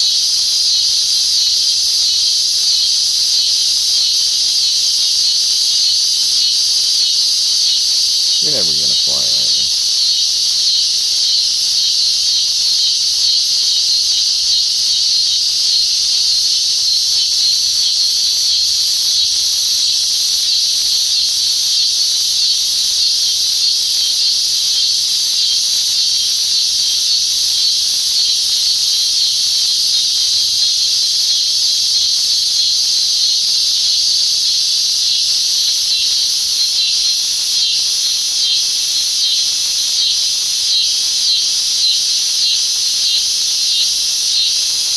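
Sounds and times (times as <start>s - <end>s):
cicada buzzing: 5.9s - 13.4s.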